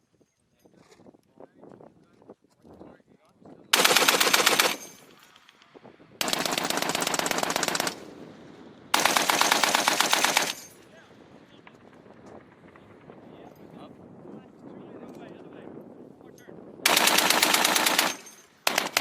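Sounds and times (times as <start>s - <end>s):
machine gun automatic fire: 3.8s - 5.1s, 6.2s - 8.1s, 8.9s - 10.8s, 16.8s - 19.0s.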